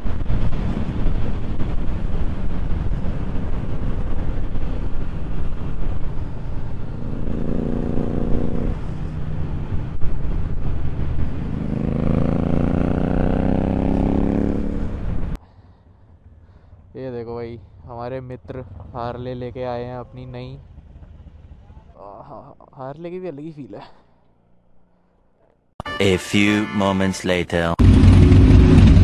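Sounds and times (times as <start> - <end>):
wind rumble on microphone: 0.0 - 12.4
motorcycle engine accelerating: 0.0 - 15.4, 27.8 - 29.0.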